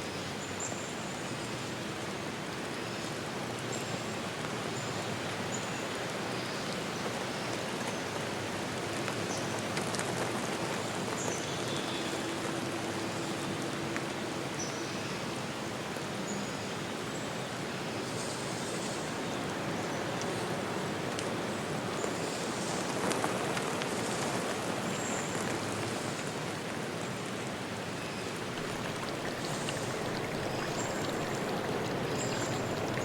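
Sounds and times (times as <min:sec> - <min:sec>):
rushing water: 0:28.4 - 0:33.0
faint low hum: 0:28.6 - 0:33.0.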